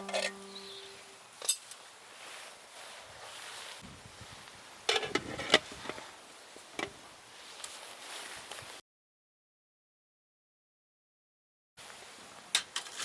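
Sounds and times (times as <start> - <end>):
metal cookware clinking: 0.0 - 0.9.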